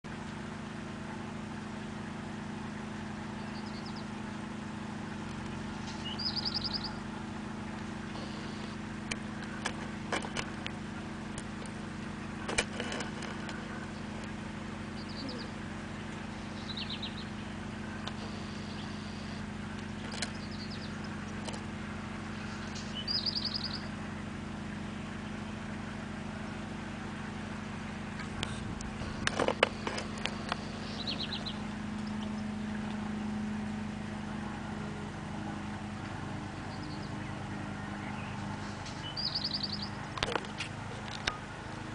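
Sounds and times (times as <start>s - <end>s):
low hum: 0.0s - 41.9s
small bird trilled chirps: 3.3s - 4.1s, 5.8s - 7.0s, 14.9s - 15.6s, 16.4s - 21.2s, 22.4s - 23.9s, 30.5s - 32.5s, 38.0s - 40.0s.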